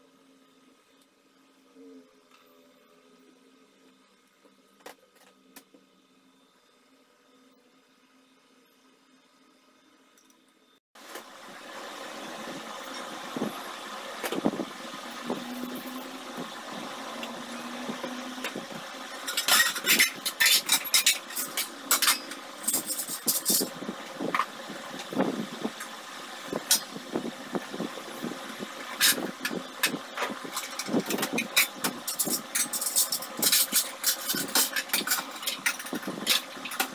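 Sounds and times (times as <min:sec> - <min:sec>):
steady background hum: 0:00.0 - 0:36.9
steel pots and bowls clanking: 0:19.2 - 0:23.7, 0:28.9 - 0:36.9.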